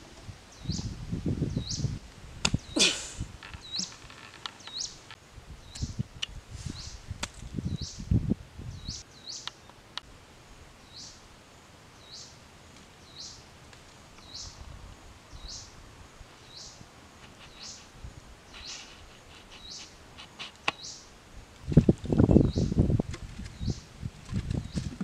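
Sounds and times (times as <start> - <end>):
hand digging through dry soil: 17.2 - 17.9, 18.5 - 20.8.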